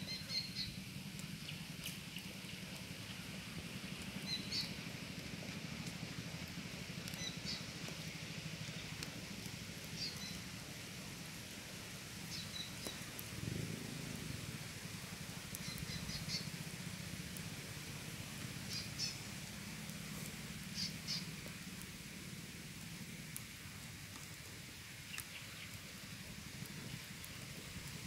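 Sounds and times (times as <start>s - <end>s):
small bird chirping: 0.0s - 0.8s, 4.2s - 4.8s, 7.2s - 7.7s, 10.0s - 10.4s, 12.3s - 13.0s, 15.6s - 16.5s, 18.7s - 19.2s, 20.7s - 21.3s.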